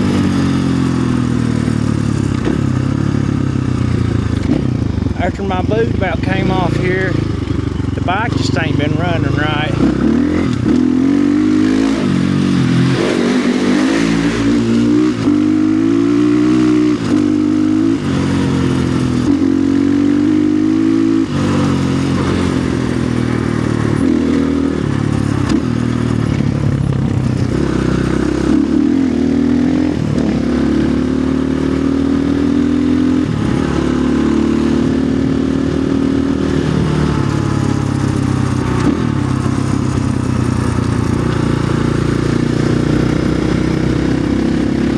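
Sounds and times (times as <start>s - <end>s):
dirt bike engine revving: 0.0s - 44.9s
person talking: 5.2s - 7.3s, 7.9s - 10.5s.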